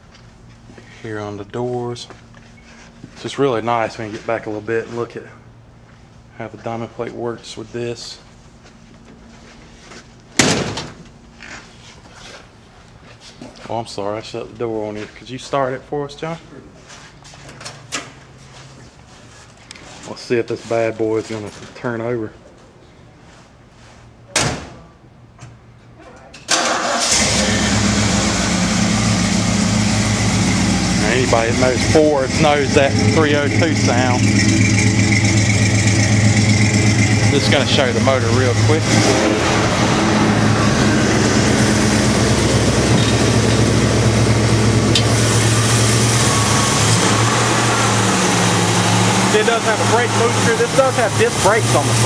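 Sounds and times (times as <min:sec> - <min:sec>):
car engine starting and idling: 0:26.5 - 0:52.0.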